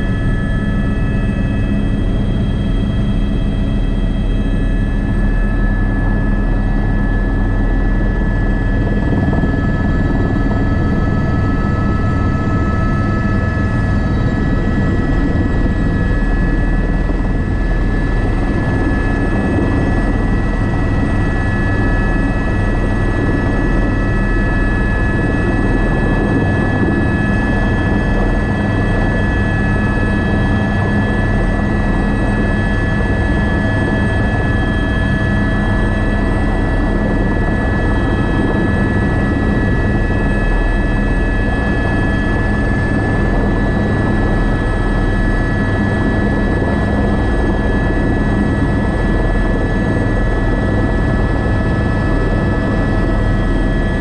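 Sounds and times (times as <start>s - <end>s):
helicopter running: 0.0s - 54.0s.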